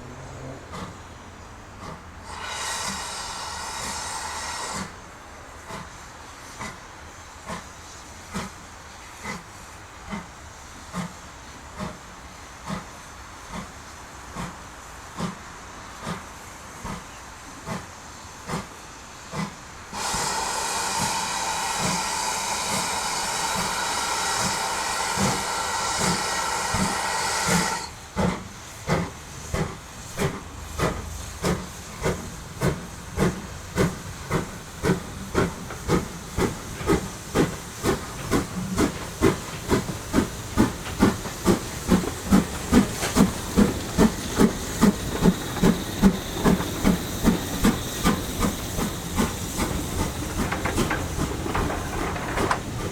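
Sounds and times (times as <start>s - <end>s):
steam locomotive chuffing: 0.0s - 52.9s
steam whistle: 2.3s - 5.0s, 20.0s - 28.0s.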